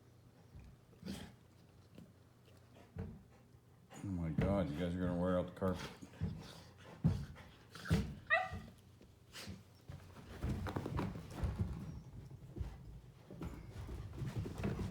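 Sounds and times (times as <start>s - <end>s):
dog paws scrabbling on carpet: 5.8s - 14.9s.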